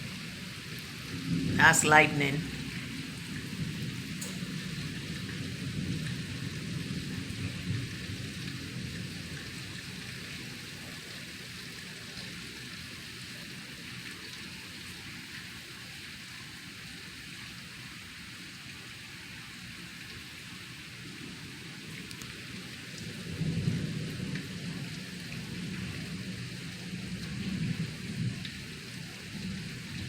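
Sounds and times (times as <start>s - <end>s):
heavy rain pouring: 0.0s - 30.0s
low thunder rumble: 1.0s - 1.6s, 2.4s - 9.2s.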